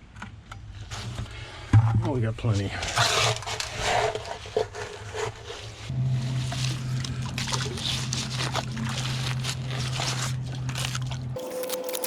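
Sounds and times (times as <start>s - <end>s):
scrapes and knocks: 0.9s - 10.2s
cement mixer humming: 2.9s - 12.0s.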